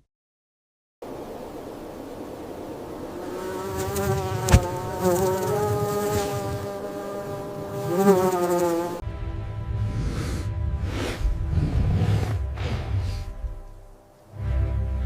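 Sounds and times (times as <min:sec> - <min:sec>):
flying insect buzzing: 0:02.6 - 0:09.0.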